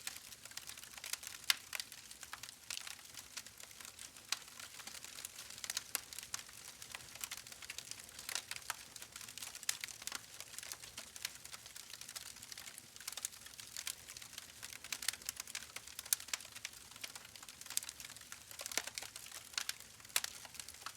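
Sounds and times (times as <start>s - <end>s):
soft crackling clicks: 14.9s - 20.9s.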